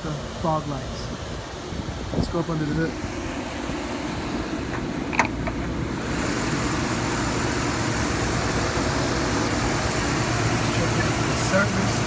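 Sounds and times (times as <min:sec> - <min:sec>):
car engine idling: 0:01.5 - 0:12.0
hood release click: 0:04.6 - 0:05.8.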